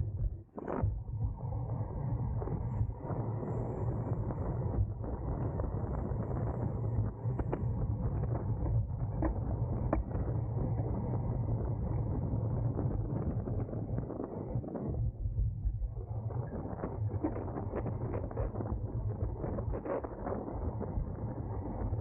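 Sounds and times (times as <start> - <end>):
wind noise: 0.0 - 22.0.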